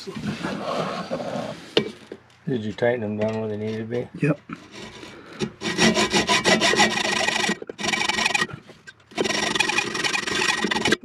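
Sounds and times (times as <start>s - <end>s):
saw cutting metal bolt: 4.6s - 11.0s.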